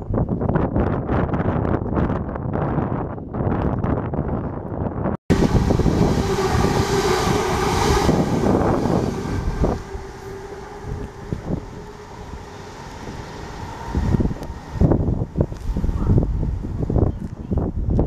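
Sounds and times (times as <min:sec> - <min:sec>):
train rumble: 0:04.9 - 0:18.0
train passing at speed: 0:05.3 - 0:18.0.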